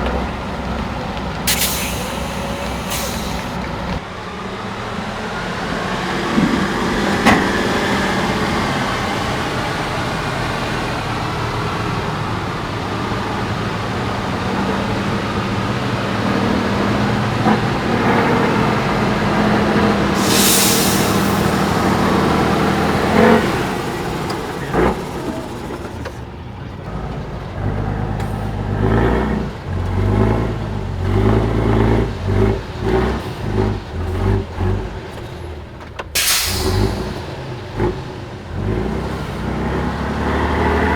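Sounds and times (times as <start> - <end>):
diesel truck engine running: 0.0 - 40.9
air hiss: 1.5 - 3.6, 20.2 - 22.2, 36.2 - 37.1.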